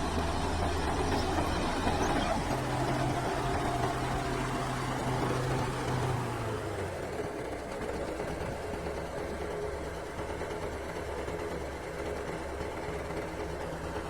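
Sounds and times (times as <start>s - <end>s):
diesel engine idling: 0.0s - 6.6s.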